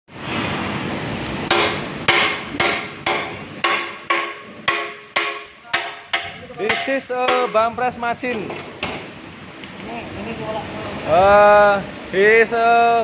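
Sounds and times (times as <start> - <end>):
steady rushing noise: 0.1 - 13.0
hammer blows on steel: 1.5 - 7.8.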